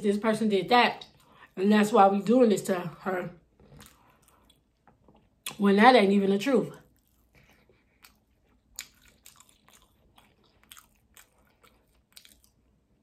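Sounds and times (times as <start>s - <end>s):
person chewing food: 3.5s - 5.6s, 6.8s - 13.0s.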